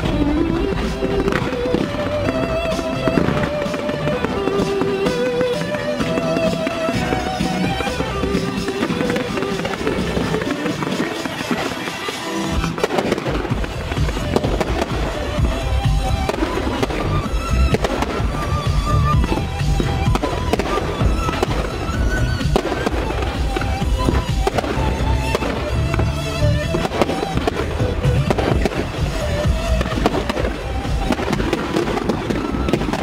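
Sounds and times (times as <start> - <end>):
fireworks bursting: 0.0 - 33.0
music: 0.0 - 33.0.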